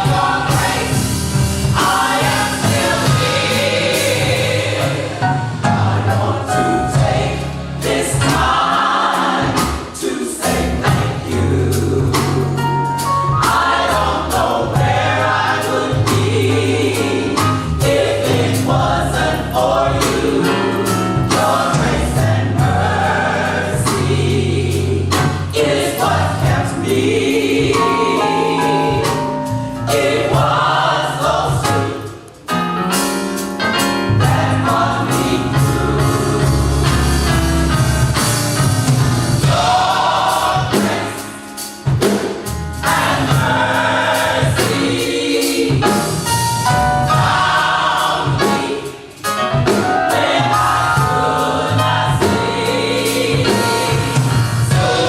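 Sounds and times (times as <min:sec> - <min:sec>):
drum hits: 0:00.0 - 0:10.0
gospel choir singing: 0:00.0 - 0:55.0.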